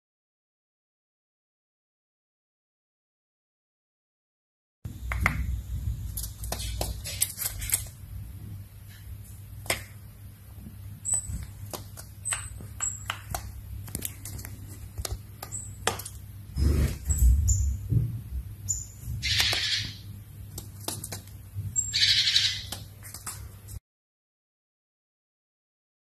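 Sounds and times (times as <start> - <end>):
low steady hum: 4.9 - 23.8
high bird peeps: 11.0 - 13.6, 14.8 - 17.8, 18.6 - 20.2, 21.7 - 22.9
bird pecking taps: 11.1 - 16.2, 19.2 - 21.4.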